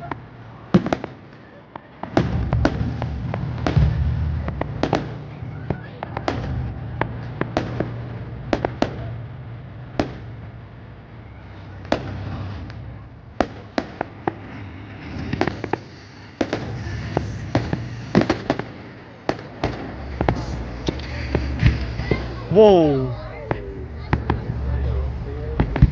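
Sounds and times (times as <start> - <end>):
fireworks bangs and cracks: 0.0 - 25.9
steady low rumble: 2.1 - 25.9.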